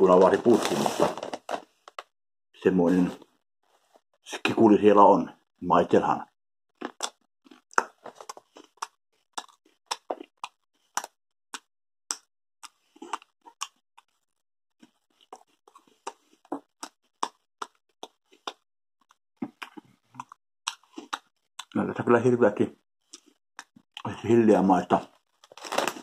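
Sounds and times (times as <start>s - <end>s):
cheese puffs crunching: 25.2s - 26.0s.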